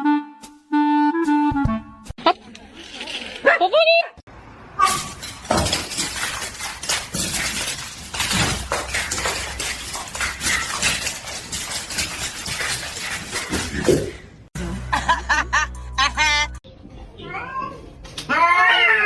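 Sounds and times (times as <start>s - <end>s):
hard objects clattering and clinking: 4.9s - 14.2s.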